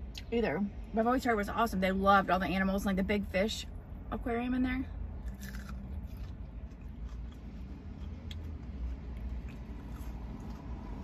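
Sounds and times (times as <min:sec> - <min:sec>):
low steady rumble: 0:00.0 - 0:11.0
chewing crunches: 0:05.2 - 0:11.0.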